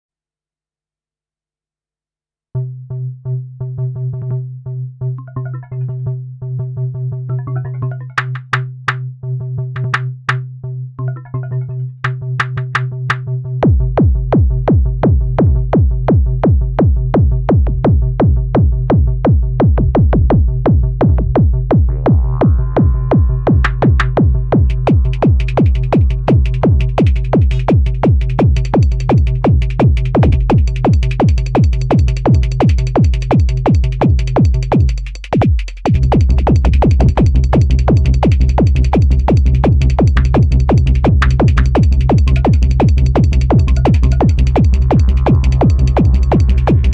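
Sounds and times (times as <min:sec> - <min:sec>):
held bass and synth tones: 0:07.3 - 0:09.1, 0:09.8 - 0:13.8, 0:21.8 - 0:46.9
drum machine kick: 0:08.2 - 0:09.0, 0:09.8 - 0:10.4, 0:12.1 - 0:21.9, 0:23.5 - 0:46.9
high percussion: 0:08.2 - 0:09.0, 0:09.8 - 0:10.5, 0:12.0 - 0:13.2, 0:23.6 - 0:46.9.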